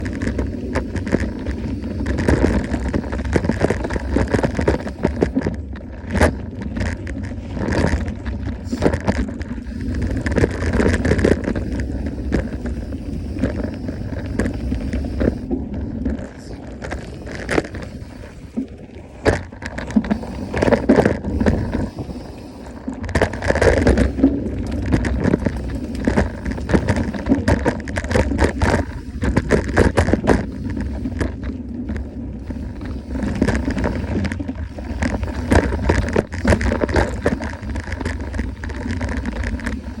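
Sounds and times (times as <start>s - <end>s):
bike rattles and knocks: 0.0s - 12.8s, 33.3s - 40.0s
bike tyres crunching on dirt: 0.0s - 40.0s.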